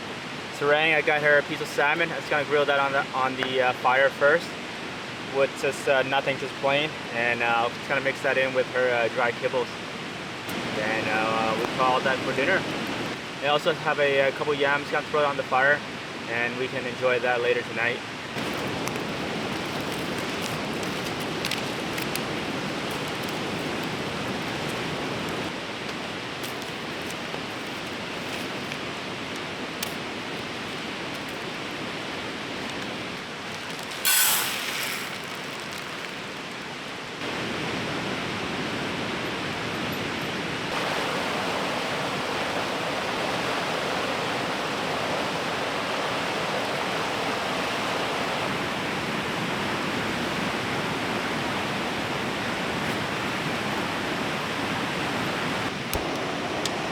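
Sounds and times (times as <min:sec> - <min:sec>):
sudden loud hiss: 0:33.8 - 0:36.4
fast-flowing river rushing: 0:40.7 - 0:56.9.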